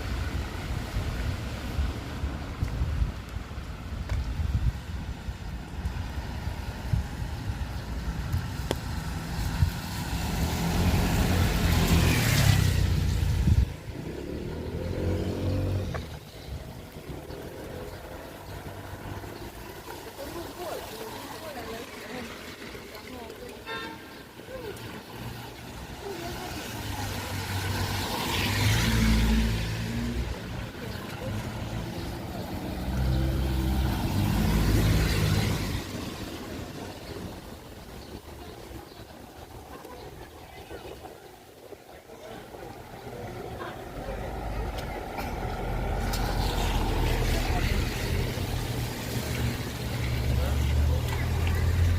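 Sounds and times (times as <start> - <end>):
wind rumble on microphone: 0.0 - 19.0
vehicles passing on wet road: 0.0 - 51.9
car tyres hissing on wet road: 17.4 - 30.7, 44.3 - 51.9.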